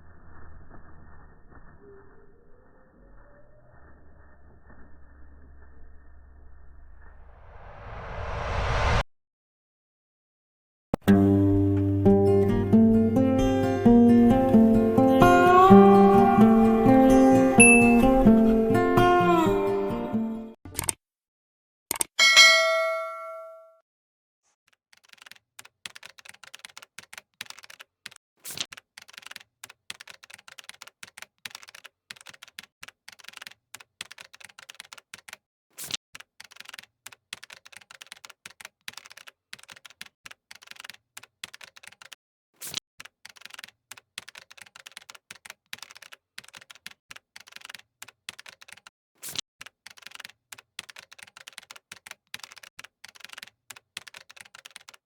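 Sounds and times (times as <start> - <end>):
louder keyboard clack: 25.0 - 27.9, 43.0 - 48.9.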